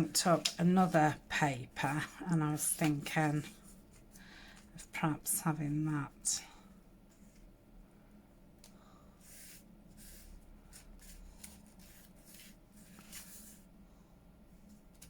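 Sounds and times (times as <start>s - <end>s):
paper rustling and sliding: 9.2s - 13.7s.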